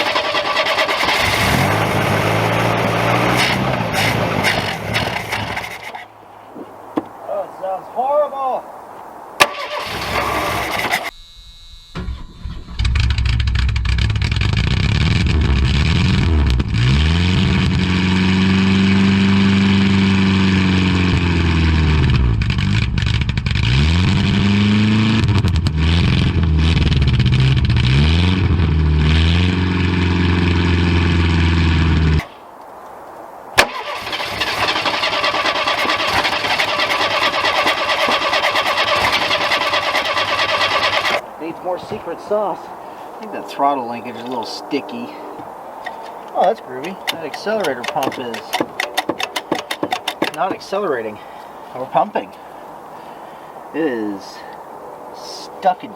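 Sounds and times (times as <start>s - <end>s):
car engine revving roughly: 0.0s - 6.0s, 12.2s - 32.3s, 33.6s - 41.2s
steady mechanical noise: 33.8s - 41.2s.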